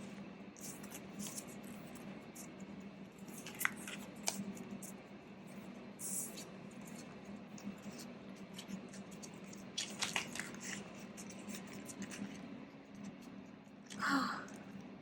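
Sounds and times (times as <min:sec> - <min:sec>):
paper and plastic rustling: 0:03.2 - 0:05.0, 0:06.0 - 0:13.2.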